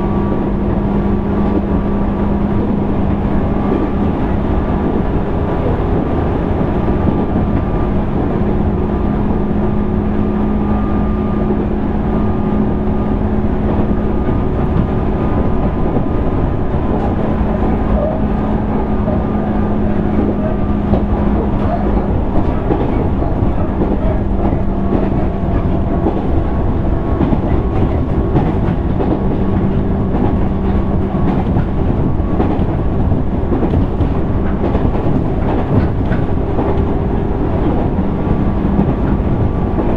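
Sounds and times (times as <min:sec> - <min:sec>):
train interior rumble: 0:00.0 - 0:39.9
train motor hum: 0:00.0 - 0:39.9
clacks from rails: 0:13.5 - 0:39.9.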